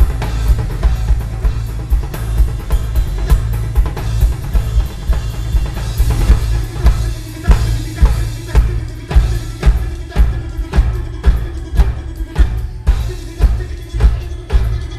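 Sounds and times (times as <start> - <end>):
drum kit kick and snare: 0.0 - 14.9
heavy bass: 0.0 - 14.9
live band instrumental: 0.0 - 14.9.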